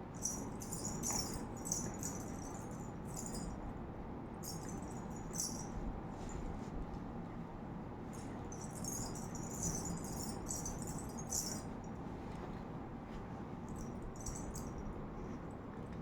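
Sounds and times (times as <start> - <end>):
jingling rattle shaken: 0.2 - 3.6, 4.4 - 5.8, 8.2 - 11.9, 13.7 - 14.9.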